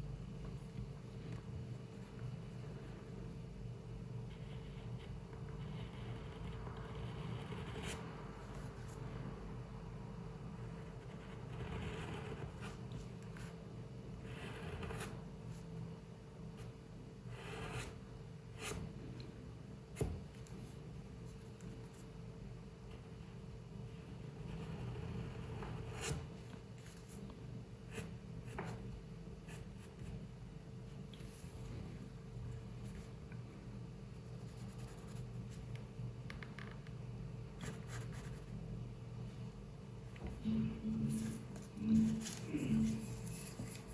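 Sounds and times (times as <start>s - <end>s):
faint room hum: 0.0s - 43.9s
pencil scratching on paper: 4.2s - 9.0s, 10.6s - 13.6s, 14.2s - 15.2s, 17.3s - 18.0s, 24.0s - 27.2s, 34.2s - 35.4s, 40.5s - 43.9s.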